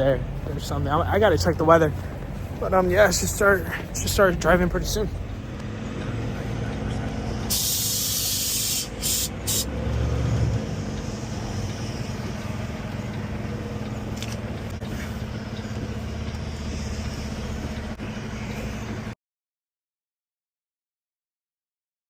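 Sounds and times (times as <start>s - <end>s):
diesel engine running: 0.0s - 19.2s
air brakes hissing: 7.4s - 9.9s, 14.9s - 15.3s.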